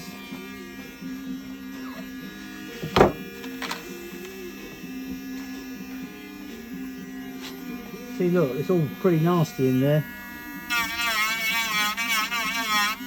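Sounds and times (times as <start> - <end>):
sharp knock: 2.8 - 3.2.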